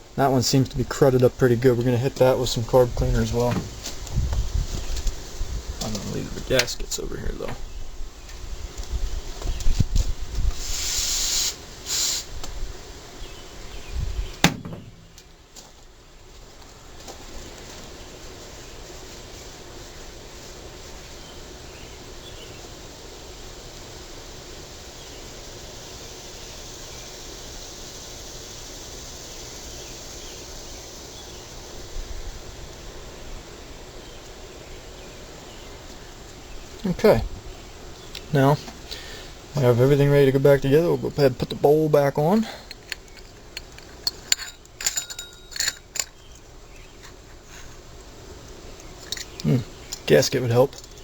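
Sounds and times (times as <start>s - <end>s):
insects: 0.0s - 51.0s
aerosol spray hissing: 10.0s - 12.6s.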